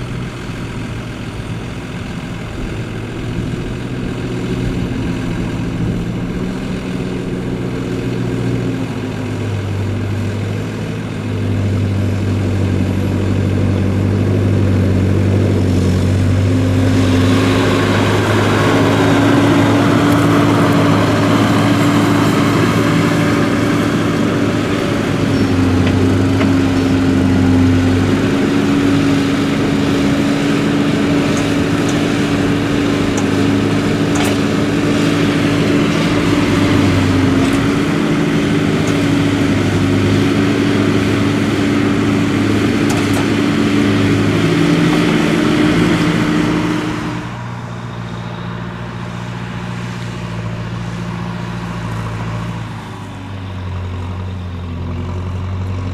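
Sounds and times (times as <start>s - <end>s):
tractor diesel engine droning: 0.0s - 55.9s.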